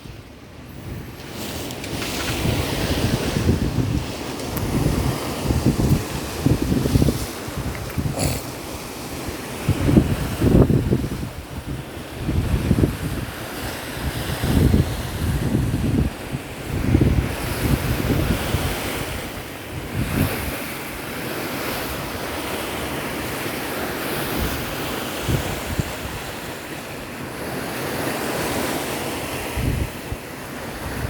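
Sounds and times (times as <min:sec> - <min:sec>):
wind buffeting microphone: 0:00.0 - 0:27.6, 0:29.3 - 0:31.0
sea water washing: 0:01.1 - 0:24.9.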